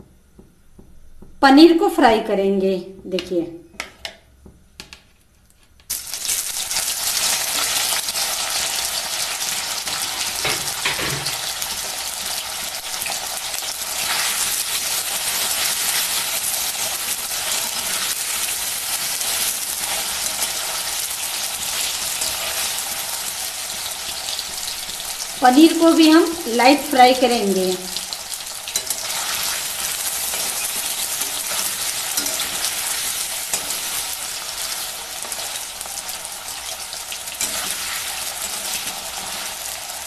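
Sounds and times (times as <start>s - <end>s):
food sizzling in hot oil: 5.9s - 40.0s
spatula turning food: 6.2s - 25.8s, 28.0s - 40.0s.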